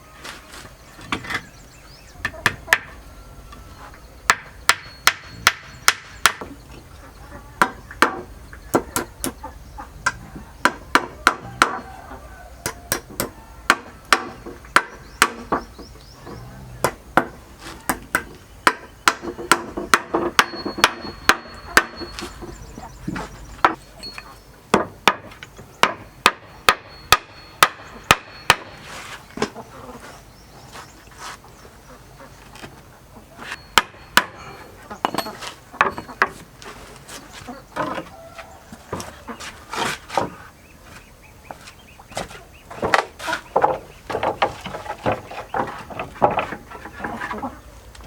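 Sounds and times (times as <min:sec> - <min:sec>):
hammer striking wood: 0:04.3 - 0:06.6, 0:07.6 - 0:09.4, 0:10.6 - 0:11.8, 0:12.6 - 0:15.7, 0:16.8 - 0:22.2, 0:24.7 - 0:28.8, 0:33.7 - 0:34.4.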